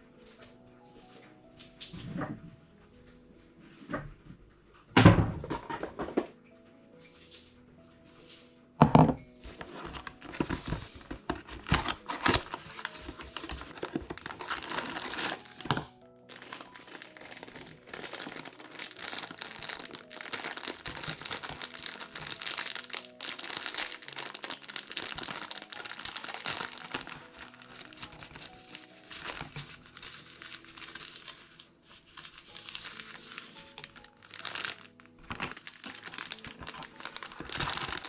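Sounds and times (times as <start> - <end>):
quiet background music: 0.0 - 38.0
packaging crinkling and tearing: 9.6 - 38.0.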